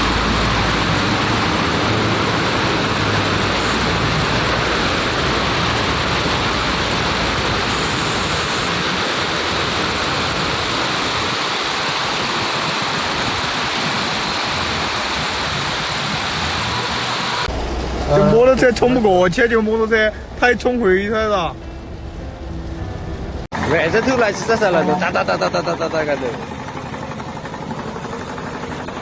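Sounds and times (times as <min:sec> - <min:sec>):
rushing floodwater: 0:00.0 - 0:21.4.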